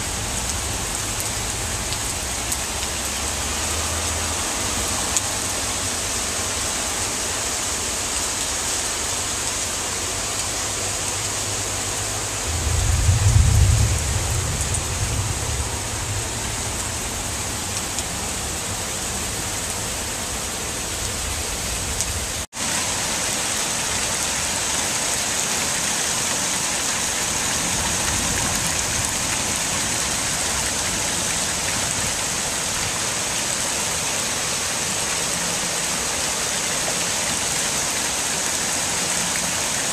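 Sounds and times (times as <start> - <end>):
heavy rain pouring: 0.0 - 39.9
deep rumble: 12.4 - 18.3.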